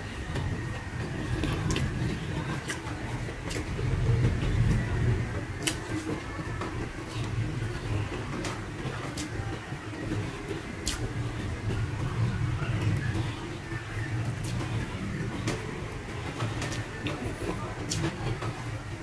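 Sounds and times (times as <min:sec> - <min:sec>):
steady low rumble: 0:00.0 - 0:19.0
chewing and lip-smacking: 0:05.6 - 0:06.2, 0:10.1 - 0:11.4, 0:14.2 - 0:18.2.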